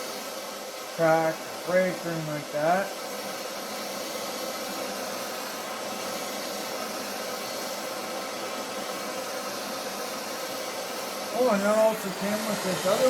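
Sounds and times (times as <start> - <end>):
gas torch hissing flame: 0.0 - 13.0.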